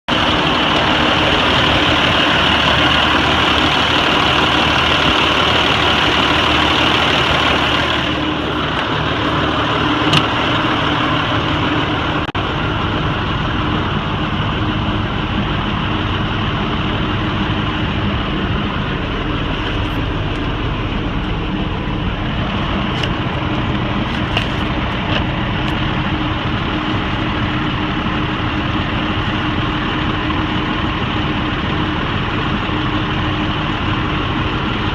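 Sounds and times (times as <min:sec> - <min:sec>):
truck diesel engine idling: 0:00.1 - 0:34.9.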